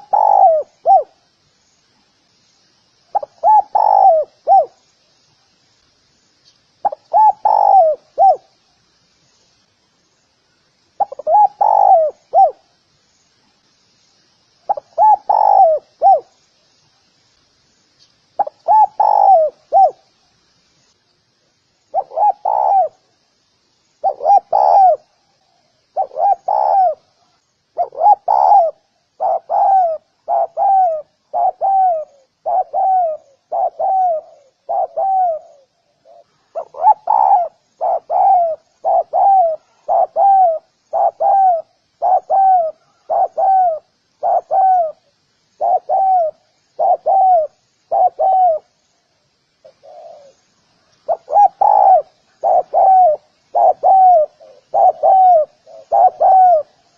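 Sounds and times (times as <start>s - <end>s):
dove cooing: 0.0s - 1.2s, 3.1s - 4.8s, 6.8s - 8.5s, 11.0s - 12.7s, 14.7s - 16.3s, 18.4s - 20.0s, 21.9s - 23.1s, 24.0s - 48.8s, 49.6s - 50.4s, 51.0s - 56.9s.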